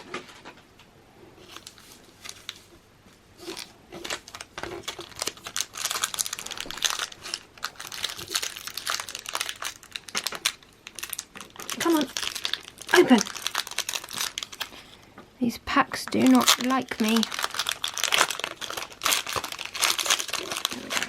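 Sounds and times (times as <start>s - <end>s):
foil wrapper crinkling: 1.4s - 2.7s, 3.4s - 15.0s, 16.0s - 21.0s.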